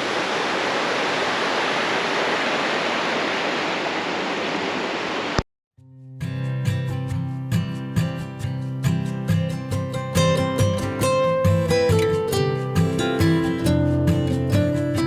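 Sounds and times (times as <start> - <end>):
acoustic guitar music: 5.8 - 15.0.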